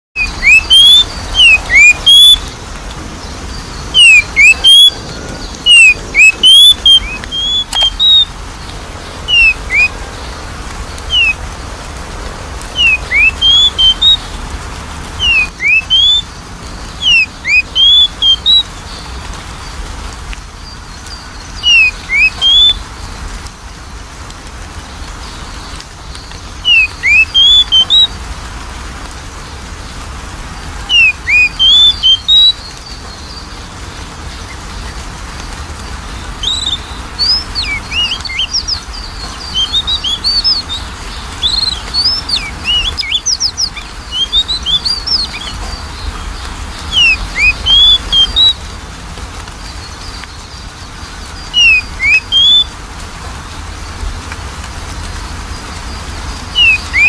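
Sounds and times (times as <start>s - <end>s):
bird singing whistled notes: 0.2s - 2.6s, 3.2s - 8.3s, 9.2s - 10.1s, 11.1s - 11.4s, 12.7s - 14.3s, 15.2s - 19.0s, 20.6s - 22.9s, 25.6s - 28.1s, 30.8s - 33.5s, 36.4s - 48.7s, 49.8s - 52.8s, 56.5s - 57.0s.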